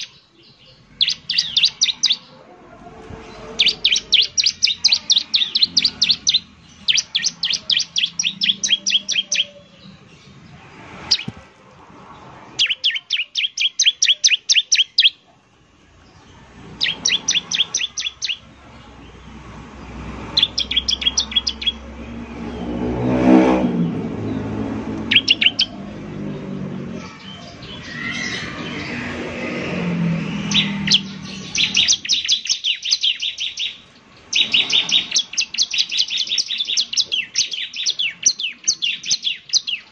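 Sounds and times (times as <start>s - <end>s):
low rumble: 18.4s - 32.0s.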